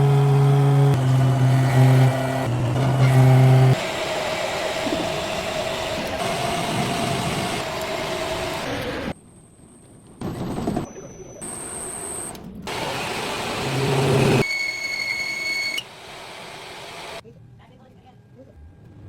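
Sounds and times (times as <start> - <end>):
machine hum: 0.0 - 9.2
rough machine running with whine: 0.0 - 9.2, 12.7 - 17.2.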